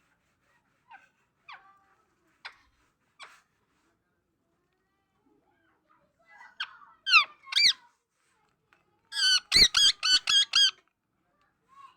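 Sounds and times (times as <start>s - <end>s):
parrot squeaky calls: 7.1s - 7.8s, 9.2s - 10.8s.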